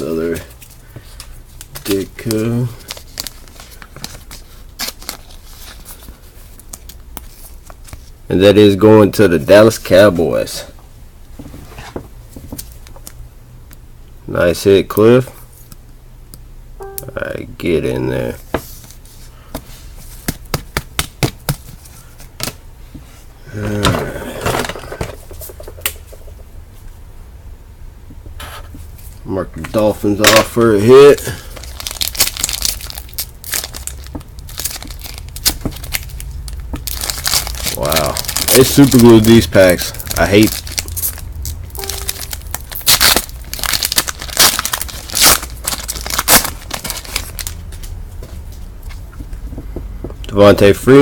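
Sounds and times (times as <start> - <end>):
packaging rustling: 0.5 - 8.1, 31.4 - 47.9
foil wrapper tearing and crinkling: 1.7 - 5.6, 31.4 - 47.9.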